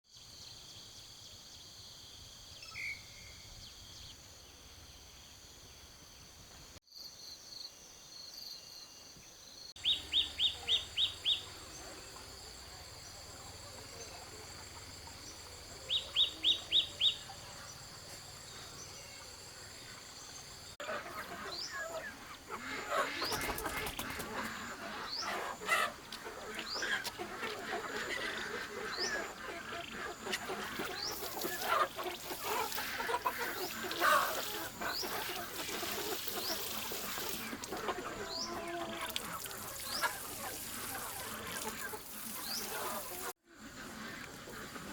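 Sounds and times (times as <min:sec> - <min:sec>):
birds chirping: 0:09.7 - 0:44.9.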